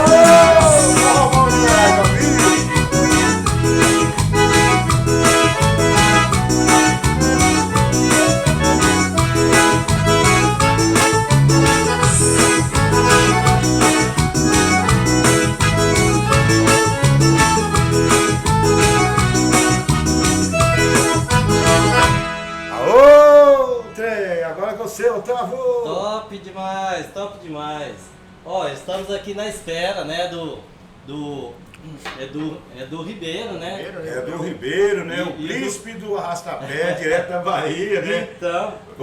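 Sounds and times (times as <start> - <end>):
live band playing with steady beat: 0.0 - 22.8
accordion-like keys melody: 0.0 - 24.2.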